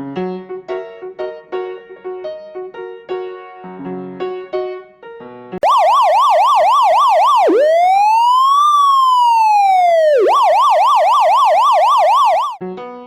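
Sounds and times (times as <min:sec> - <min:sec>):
electronic siren yelping and wailing: 0:05.6 - 0:12.6.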